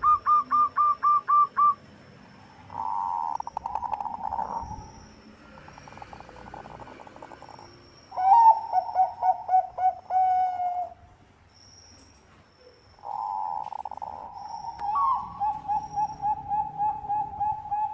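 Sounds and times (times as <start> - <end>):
dove cooing: 0.0 - 1.8, 2.7 - 4.9, 8.2 - 11.0, 13.0 - 17.9.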